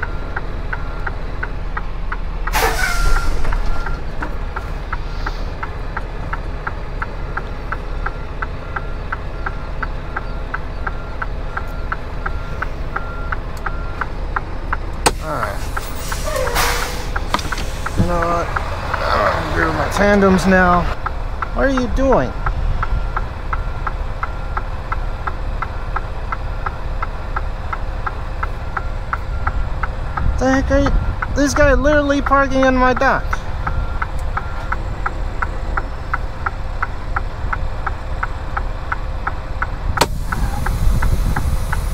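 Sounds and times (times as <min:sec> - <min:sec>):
diesel engine idling: 0:00.0 - 0:41.9
truck reverse beeper: 0:00.0 - 0:41.9
backup alarm beeping: 0:02.5 - 0:04.1, 0:08.1 - 0:14.1.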